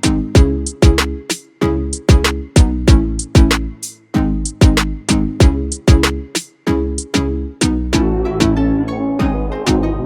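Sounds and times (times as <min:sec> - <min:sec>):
plucked guitar over a beat: 0:07.9 - 0:10.0.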